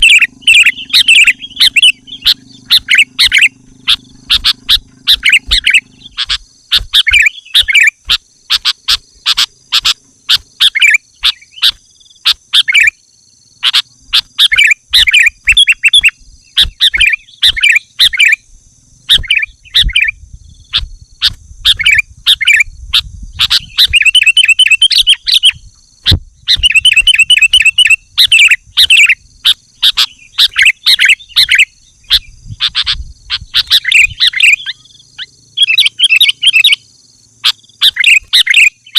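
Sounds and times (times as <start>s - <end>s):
bird singing chirped phrases: 0.0s - 38.9s
faint high whine: 0.0s - 38.9s.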